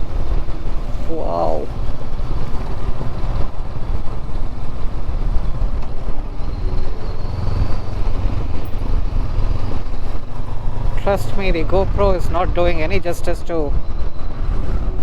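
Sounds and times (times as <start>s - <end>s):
motorcycle engine running: 0.0s - 13.2s
wind rumble on microphone: 0.0s - 15.0s.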